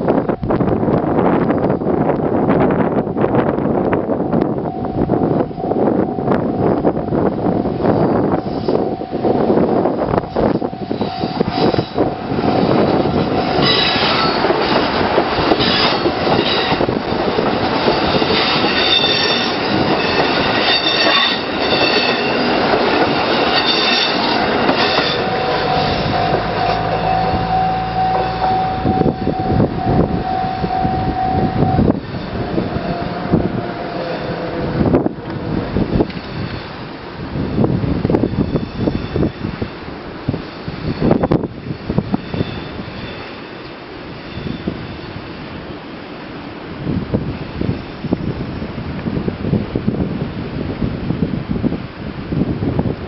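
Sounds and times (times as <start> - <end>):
diesel train rumbling on bridge: 0.0 - 53.0
steady tone: 3.7 - 36.9
wheels clattering and squealing: 10.2 - 36.8, 38.2 - 39.6, 40.7 - 45.2.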